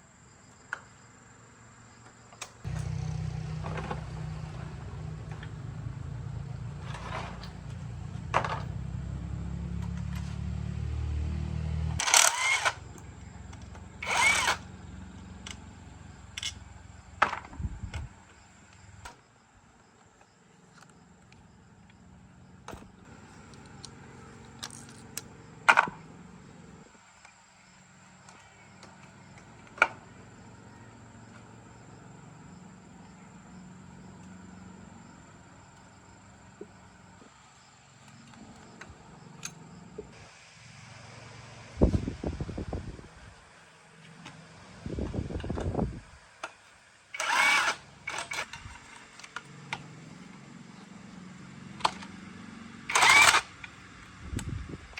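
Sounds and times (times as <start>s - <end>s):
motor humming: 2.7s - 19.1s, 47.1s - 54.9s.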